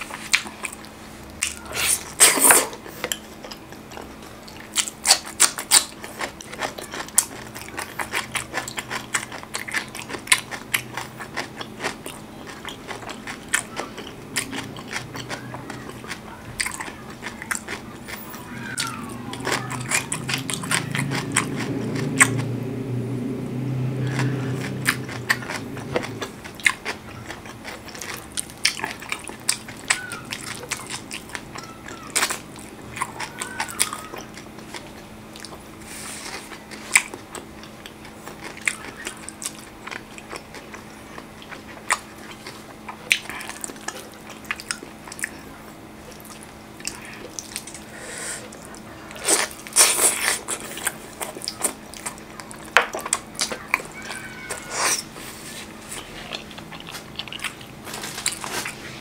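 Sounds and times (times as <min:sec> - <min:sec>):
wet chewing: 0:00.0 - 0:59.0
low hum: 0:12.1 - 0:27.3
lip-smacking: 0:36.2 - 0:55.2.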